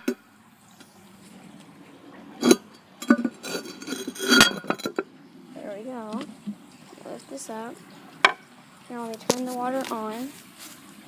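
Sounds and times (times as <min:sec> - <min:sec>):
porcelain lid clinking and knocking: 0:02.4 - 0:05.0.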